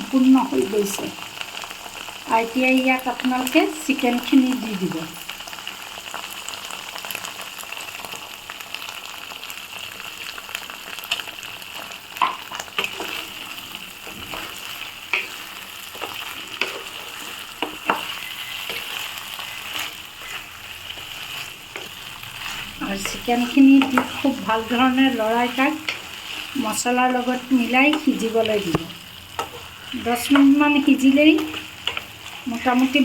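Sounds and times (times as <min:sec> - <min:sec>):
chicken sizzling in hot oil: 0:00.0 - 0:33.0
spoon scraping and knocking pan: 0:12.2 - 0:33.0.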